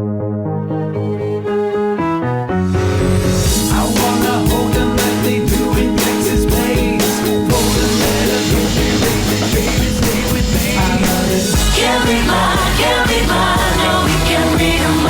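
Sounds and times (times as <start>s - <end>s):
band playing roots music: 2.7s - 15.0s
person singing: 3.5s - 15.0s.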